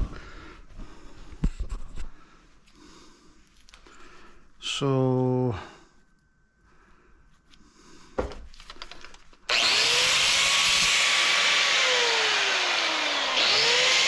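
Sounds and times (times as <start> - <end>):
power tool running: 9.5 - 14.0.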